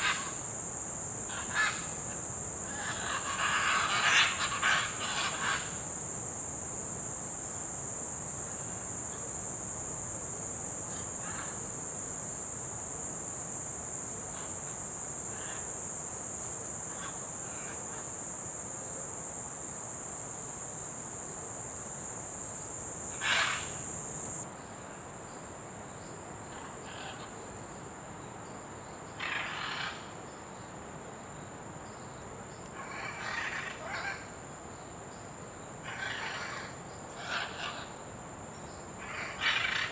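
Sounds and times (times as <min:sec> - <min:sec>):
tropical insects droning: 0:00.0 - 0:39.9.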